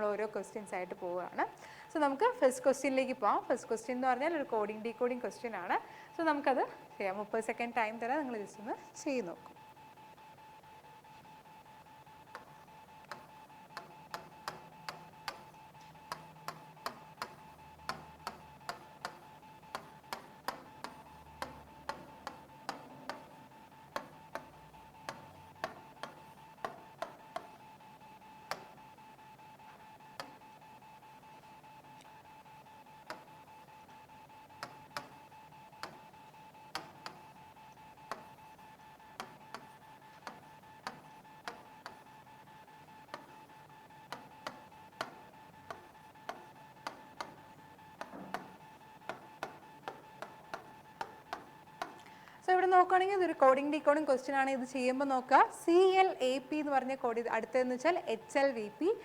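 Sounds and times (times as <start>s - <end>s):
high-pitched electrical hum: 0.0s - 59.0s
sharp clicks: 11.1s - 30.7s, 31.9s - 52.4s.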